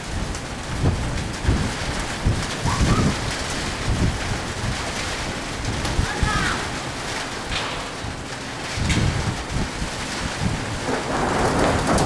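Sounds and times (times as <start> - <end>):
heavy rain: 0.0 - 12.0
low rumbles or thumps: 7.4 - 12.0.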